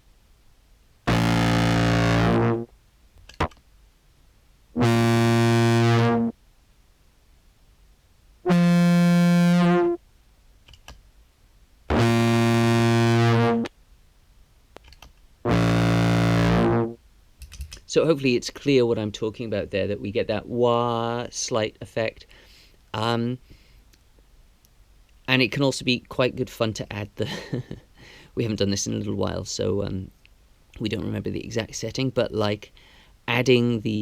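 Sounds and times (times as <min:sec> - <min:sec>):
filtered fuzz clarinet notes: 0:01.1 - 0:02.7, 0:04.8 - 0:06.4, 0:08.5 - 0:10.0, 0:11.9 - 0:13.7, 0:15.4 - 0:17.0.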